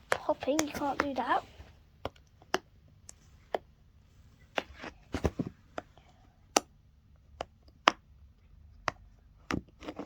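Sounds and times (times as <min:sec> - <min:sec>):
plastic toy clicks and taps: 0:00.1 - 0:01.2.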